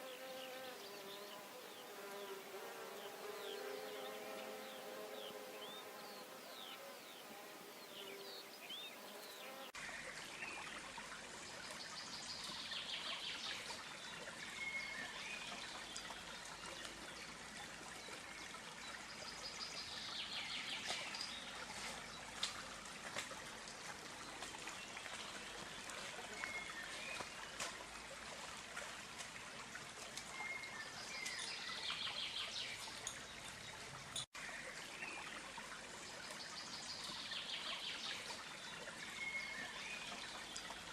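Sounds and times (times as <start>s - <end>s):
insect buzzing: 0.0s - 9.7s
trickling stream: 0.0s - 40.9s
birds chirping: 3.0s - 9.8s.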